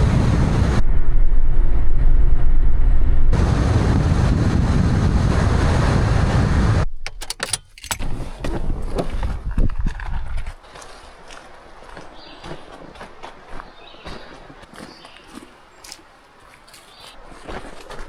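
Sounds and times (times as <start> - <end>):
car road and engine rumble: 2.9 - 7.0.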